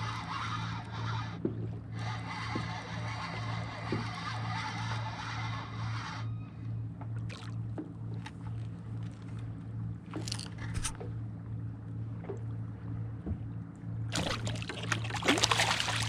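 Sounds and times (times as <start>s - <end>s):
steady low hum: 0.0s - 16.0s
water splashing against kayak hull: 14.1s - 16.0s.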